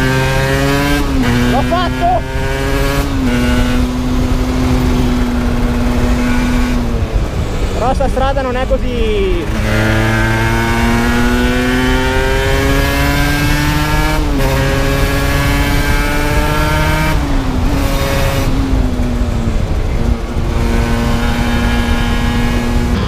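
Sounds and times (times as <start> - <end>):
motorcycle engine revving: 0.0 - 23.0
wind rush: 0.0 - 23.0.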